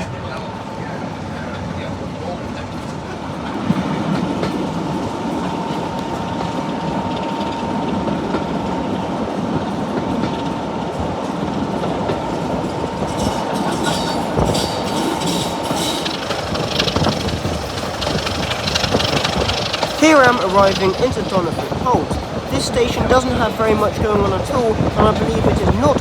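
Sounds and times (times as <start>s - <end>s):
clickety-clack of wheels: 0.0s - 26.0s
train rumbling on rails: 0.0s - 26.0s
steady whine: 12.0s - 26.0s
wheels squealing on track: 12.3s - 26.0s.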